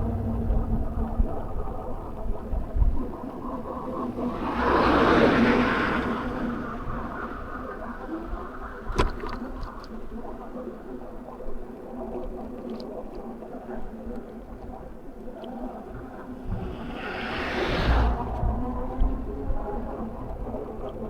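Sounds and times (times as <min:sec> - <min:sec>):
electric bike hum: 0:00.0 - 0:07.6
tyre and wind noise: 0:15.9 - 0:21.0.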